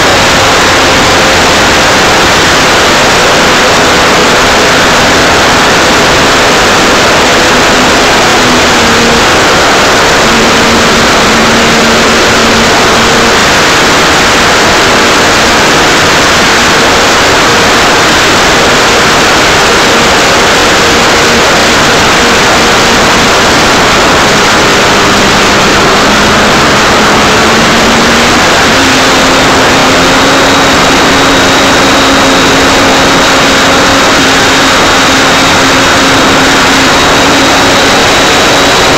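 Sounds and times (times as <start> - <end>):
loud rushing wind: 0.0 - 38.9
model plane propeller hum: 0.0 - 38.9.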